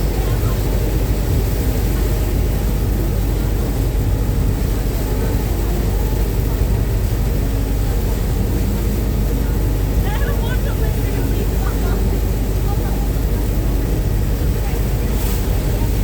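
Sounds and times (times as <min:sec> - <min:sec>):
boat engine rumble: 0:00.0 - 0:16.0
rushing wind: 0:00.0 - 0:16.0
water noise: 0:00.0 - 0:16.0.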